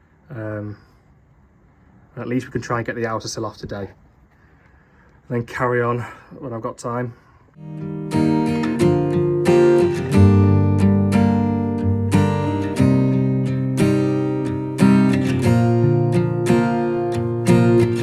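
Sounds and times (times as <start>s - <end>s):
acoustic guitar strumming chords: 7.6s - 18.0s.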